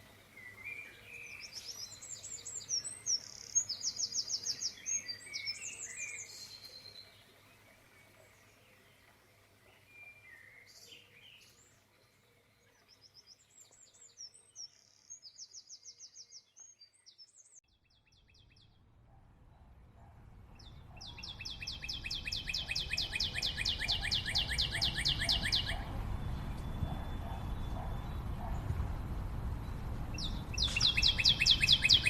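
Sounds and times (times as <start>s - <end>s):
birds chirping in trills: 19.5s - 32.0s
low rumbling noise: 25.6s - 31.8s.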